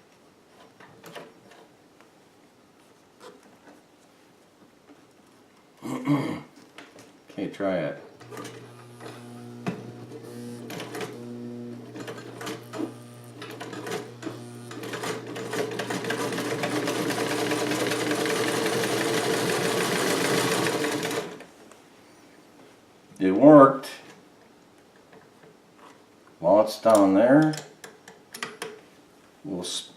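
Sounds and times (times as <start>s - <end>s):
electric sewing machine stitching: 8.2s - 21.5s.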